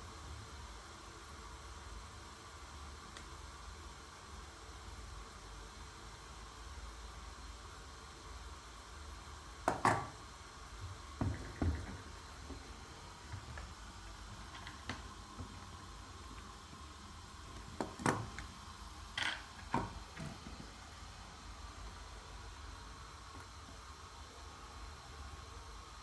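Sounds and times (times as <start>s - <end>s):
steady background hiss: 0.0s - 26.0s
objects knocking and clicking: 9.7s - 10.2s, 11.2s - 12.6s.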